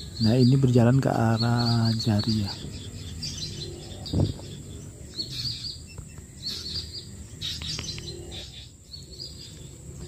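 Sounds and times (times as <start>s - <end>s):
small birds chirping: 0.0s - 10.0s
dull low thump: 4.1s - 4.5s.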